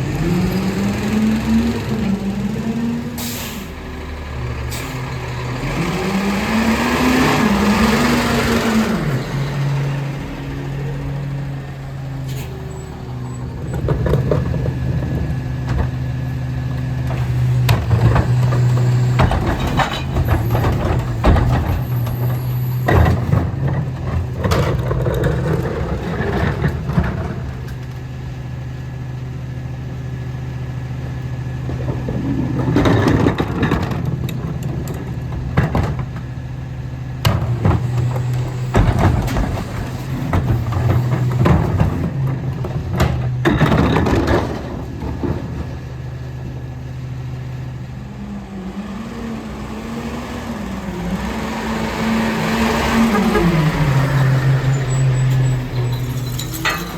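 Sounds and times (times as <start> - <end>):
garbage truck engine running: 0.0 - 56.9
clanks of metal and plastic: 17.1 - 27.8, 31.7 - 36.3, 37.2 - 45.7, 55.3 - 56.9.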